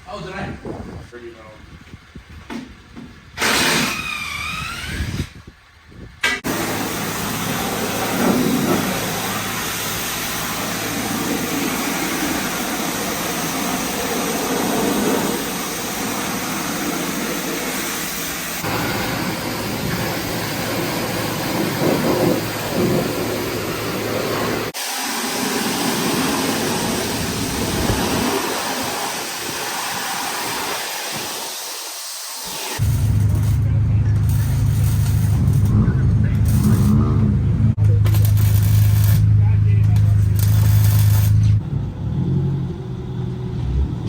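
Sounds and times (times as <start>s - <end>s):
car engine and road noise: 4.1s - 24.8s, 32.8s - 44.0s.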